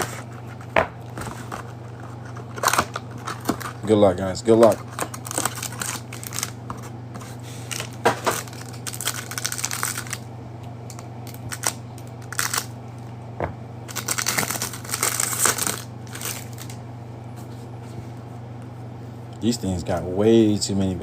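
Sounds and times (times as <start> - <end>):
cardboard and wrapper tearing: 2.5 - 3.8, 4.7 - 6.6, 7.7 - 10.2, 11.3 - 12.7, 13.9 - 16.7.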